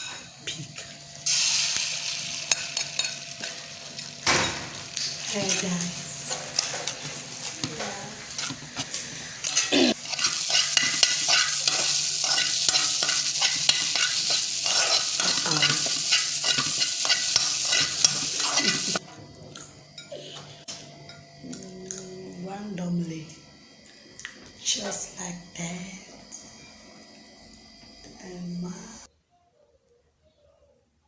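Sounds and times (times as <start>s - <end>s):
food sizzling in a pan: 0.8s - 19.0s
utensil scraping a pan: 8.4s - 19.0s.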